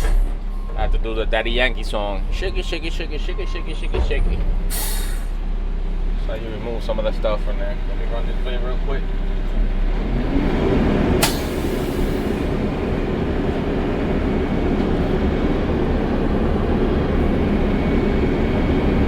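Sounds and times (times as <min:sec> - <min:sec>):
diesel truck engine: 0:00.0 - 0:19.0
air hiss burst: 0:04.7 - 0:05.4.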